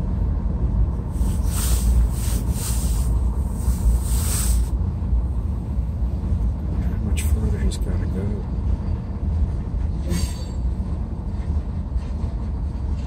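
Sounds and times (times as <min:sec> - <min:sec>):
freight train rumbling: 0:00.0 - 0:13.0
train hissing: 0:01.1 - 0:04.8.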